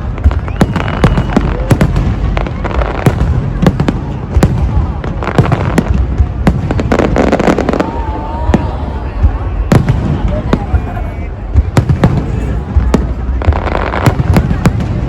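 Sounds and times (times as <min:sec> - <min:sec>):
fireworks sharp bangs: 0:00.0 - 0:15.0.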